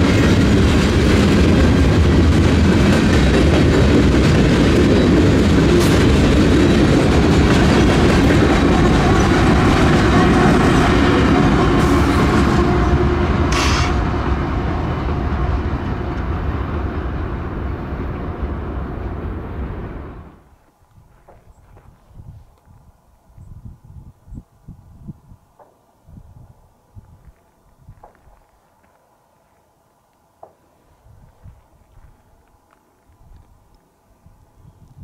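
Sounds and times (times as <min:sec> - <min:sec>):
train cars clattering over rails: 0:00.0 - 0:14.1
sharp train screech: 0:11.6 - 0:14.1.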